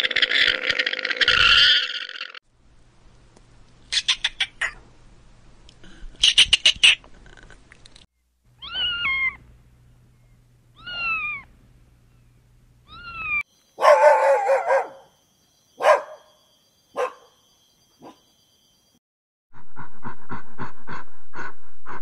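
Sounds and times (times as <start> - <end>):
kittens meowing: 8.6 - 9.4, 10.7 - 11.5, 12.8 - 13.4.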